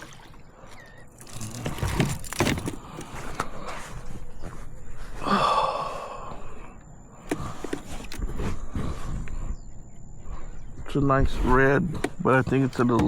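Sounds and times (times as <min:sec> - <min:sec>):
knocks and clatter on kayak: 0:11.9 - 0:13.0.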